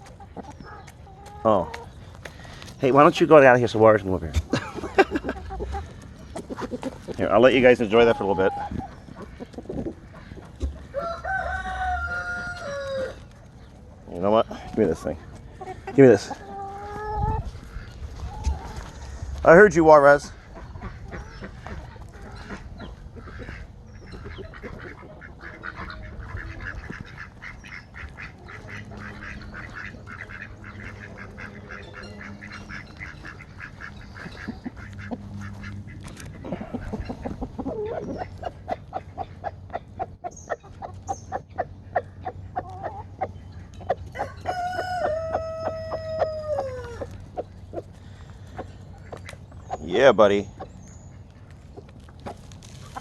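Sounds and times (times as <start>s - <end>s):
chickens clucking and calling: 0.0s - 53.0s
long falling chicken call: 44.2s - 47.2s.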